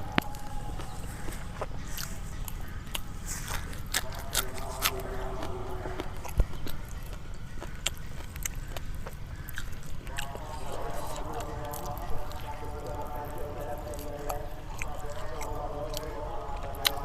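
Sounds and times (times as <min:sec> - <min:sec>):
chewing and tearing meat: 0:00.0 - 0:17.0
crisp skin crackling: 0:00.0 - 0:17.0.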